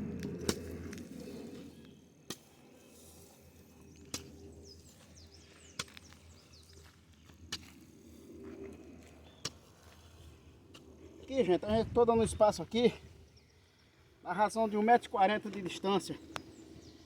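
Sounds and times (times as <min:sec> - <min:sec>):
hoe striking soil: 0:04.1 - 0:04.4.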